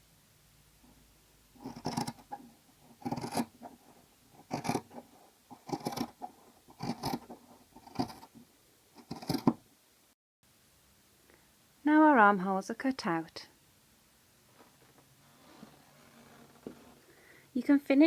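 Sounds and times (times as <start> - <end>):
scissors cutting through blanket: 1.6 - 8.3, 9.0 - 9.6.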